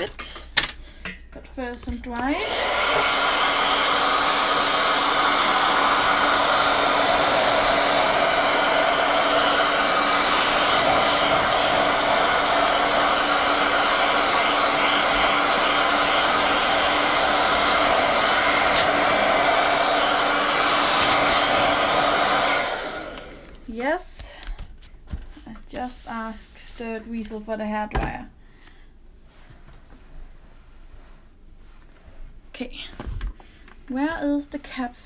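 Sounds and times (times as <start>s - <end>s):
hair dryer running: 2.1s - 23.7s.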